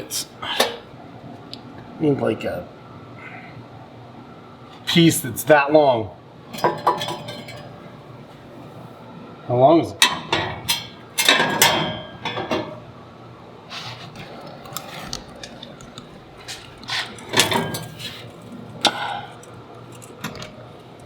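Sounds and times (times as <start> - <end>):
low shop hum: 0.0 - 21.0
metal scrape: 16.4 - 20.1.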